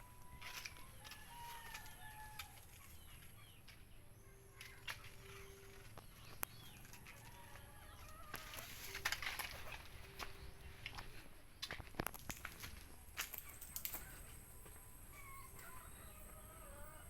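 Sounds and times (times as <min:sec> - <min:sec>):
chicken calls: 0:13.4 - 0:17.0.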